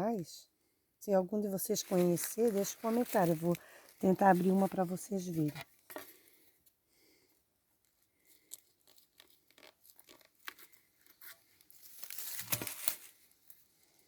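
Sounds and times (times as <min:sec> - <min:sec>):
fruit husk cracking open by hand: 0:08.5 - 0:13.3.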